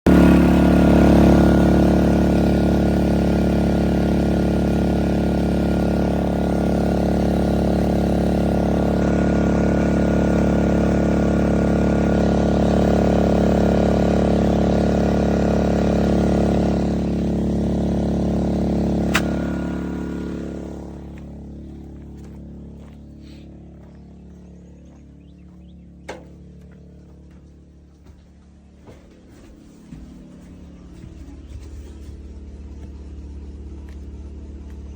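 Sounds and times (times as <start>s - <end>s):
generator engine running: 0.0s - 34.9s
sharp click: 19.1s - 19.4s.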